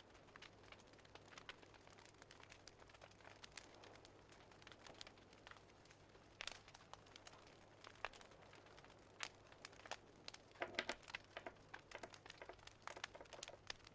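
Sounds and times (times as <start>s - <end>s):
wood fire crackling: 0.0s - 13.9s.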